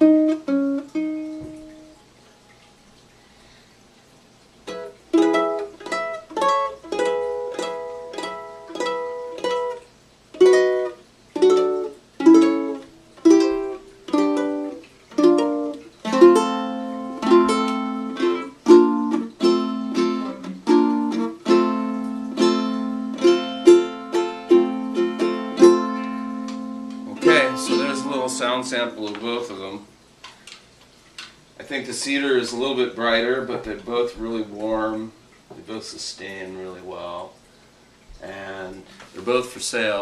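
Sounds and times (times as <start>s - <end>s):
ukulele fingerpicking: 0.0s - 2.4s, 4.6s - 29.5s.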